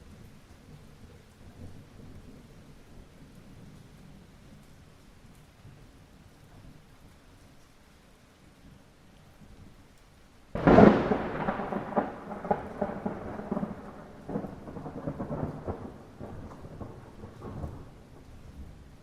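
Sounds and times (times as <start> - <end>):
light rain falling: 0.0 - 19.0
thunderclap crackling and rumbling: 10.5 - 19.0.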